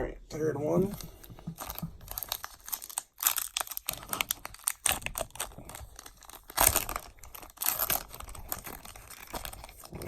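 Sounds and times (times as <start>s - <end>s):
wrapper tearing and crinkling: 1.5s - 10.0s.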